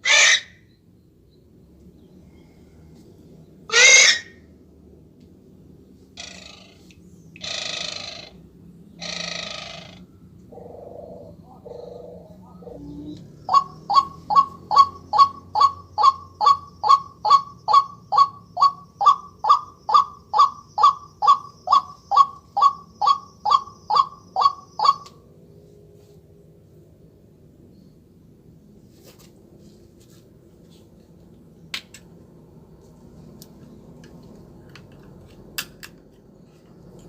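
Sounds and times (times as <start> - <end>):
recorded bird calls from speaker: 0.0 - 1.4, 3.4 - 4.4, 6.2 - 25.2.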